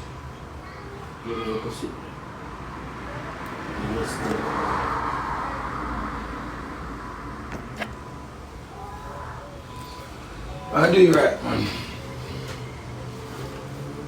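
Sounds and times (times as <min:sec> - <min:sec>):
vehicle rushing past: 0:02.2 - 0:09.3.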